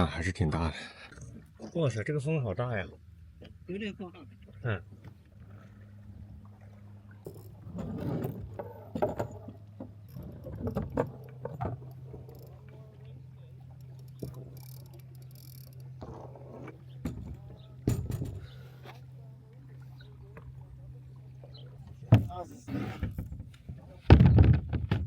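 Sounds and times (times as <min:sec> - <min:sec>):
steady low hum: 0:02.7 - 0:23.9
knocks on boat hull: 0:17.0 - 0:18.5, 0:22.1 - 0:22.4.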